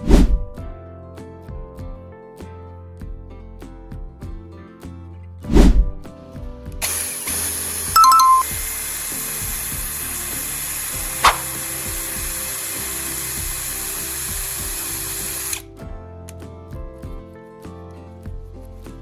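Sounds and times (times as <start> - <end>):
background music: 0.0 - 19.0
power drill running: 6.8 - 15.6
short sharp click: 11.2 - 11.4.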